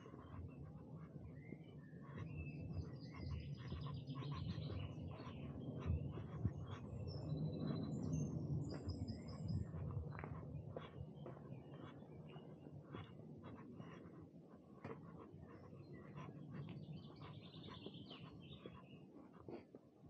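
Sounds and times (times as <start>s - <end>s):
songbirds singing and chirping: 0.0s - 19.8s.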